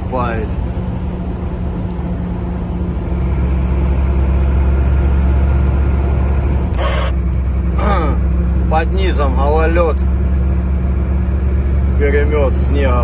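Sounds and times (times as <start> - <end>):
deep low drone: 0.0 - 13.0
truck engine and road drone: 0.0 - 13.0.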